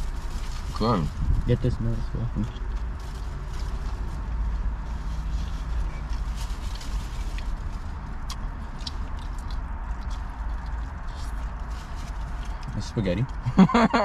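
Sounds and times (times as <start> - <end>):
car idling rumble: 0.0 - 14.0
food being eaten crackles: 6.0 - 13.4.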